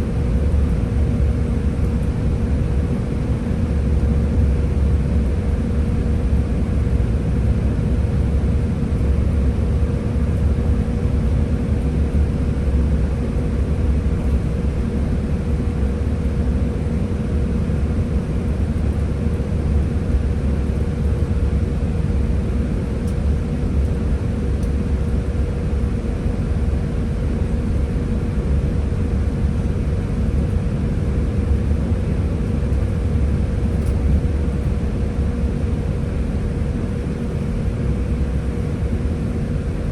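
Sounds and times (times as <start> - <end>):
bus engine drone: 0.0 - 39.9
faint steady whine: 0.0 - 39.9.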